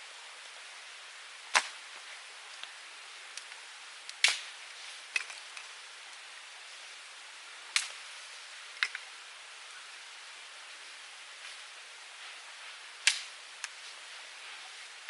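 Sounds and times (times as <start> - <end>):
fire hissing: 0.0 - 15.0
wood fire popping: 1.5 - 6.2, 7.7 - 9.1, 13.0 - 15.0.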